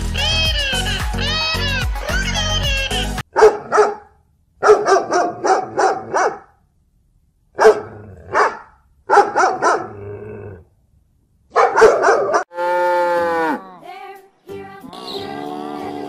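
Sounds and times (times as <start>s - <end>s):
dog barking: 3.3s - 6.6s, 7.6s - 10.0s, 11.5s - 12.5s.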